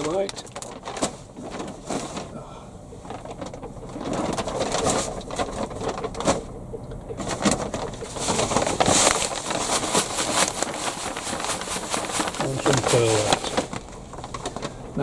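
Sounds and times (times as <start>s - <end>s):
hands rustling compost: 7.2s - 15.0s.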